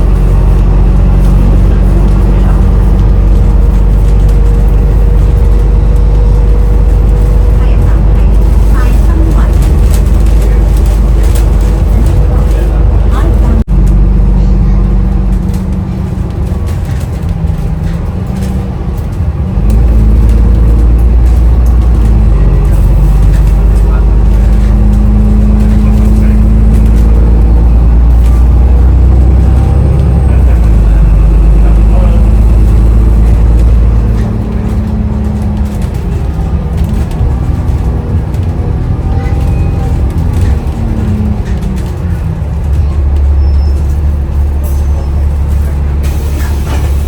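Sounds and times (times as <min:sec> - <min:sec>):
bus engine and road noise: 0:00.0 - 0:47.0.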